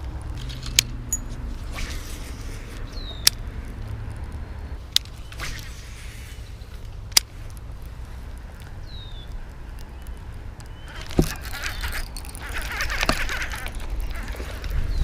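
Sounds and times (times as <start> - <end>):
wind rumbling on microphone: 0.0 - 15.0
soft swishes: 1.3 - 2.9
sharp clicks: 2.7 - 5.8, 6.6 - 15.0.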